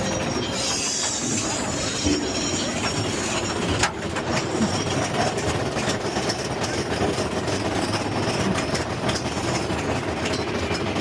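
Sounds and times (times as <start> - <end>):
roller coaster cars rattling: 0.0 - 11.0.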